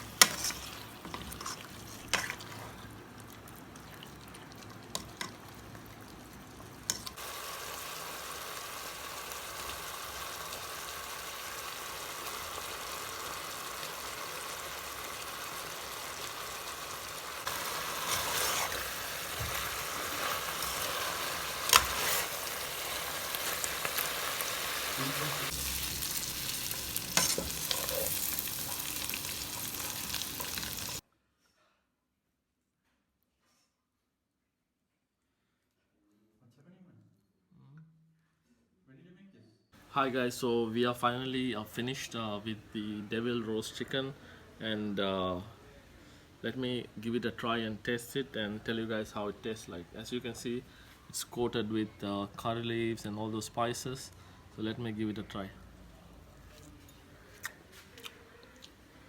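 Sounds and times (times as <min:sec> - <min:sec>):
spoon clacking against pan: 0:00.0 - 0:05.8, 0:06.5 - 0:07.2, 0:17.4 - 0:31.0
food sizzling in a pan: 0:00.0 - 0:31.0.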